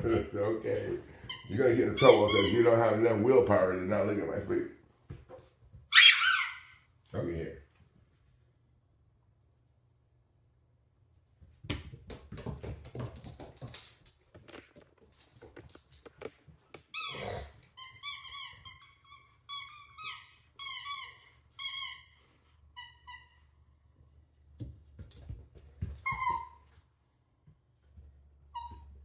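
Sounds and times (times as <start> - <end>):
knocks and scrabbling: 11.6 - 16.9.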